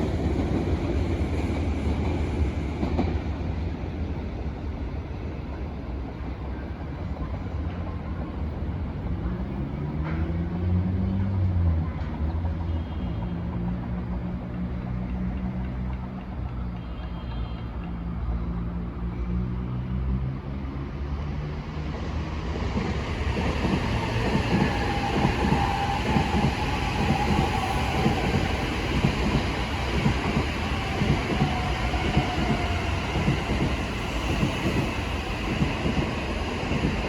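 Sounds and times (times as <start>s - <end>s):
train wheels clattering on track: 0.0s - 3.9s, 13.5s - 18.2s, 21.8s - 37.0s.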